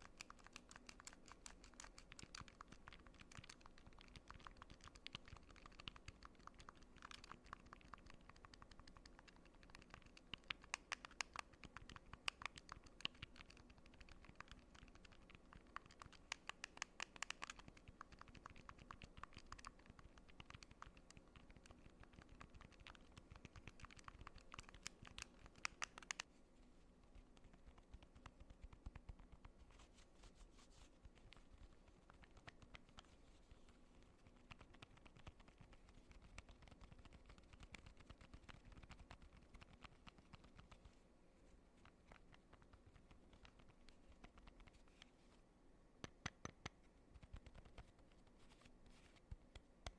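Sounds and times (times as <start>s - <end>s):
fingertips scratching: 0.0s - 26.2s
fingertips clicking small buttons: 23.6s - 26.2s.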